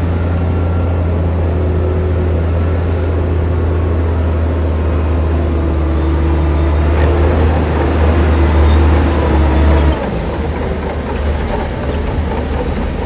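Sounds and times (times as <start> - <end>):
diesel machinery droning: 0.0 - 13.0.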